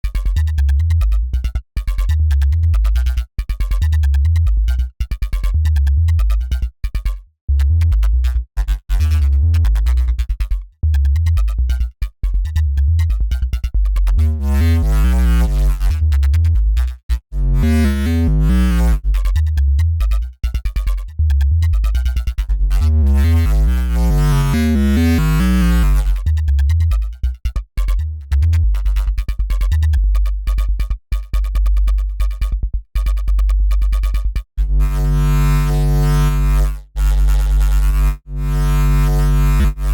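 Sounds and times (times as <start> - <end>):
synthesizer bass riff: 14.1 - 20.0, 21.2 - 27.2, 27.9 - 30.6, 34.6 - 39.9
gritty wobbling synth growl: 14.2 - 16.3, 17.4 - 19.0, 22.6 - 26.2, 34.6 - 39.9.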